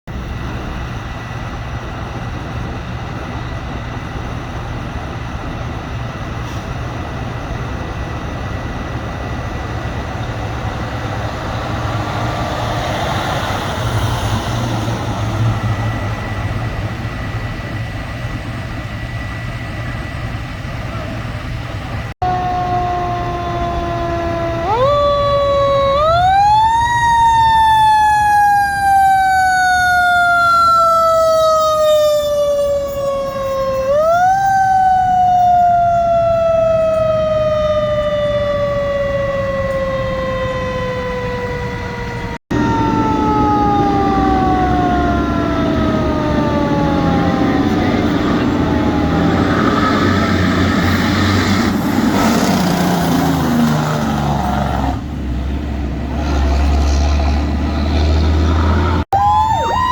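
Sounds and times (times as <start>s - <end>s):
fire truck siren wailing: 0.1s - 55.1s, 56.2s - 59.9s
truck engines rumbling: 0.1s - 59.9s.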